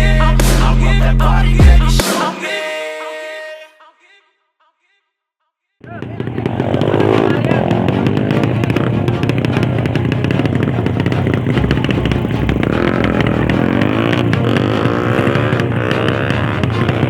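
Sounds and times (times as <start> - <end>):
motorcycle engines revving hard: 5.8 - 17.0.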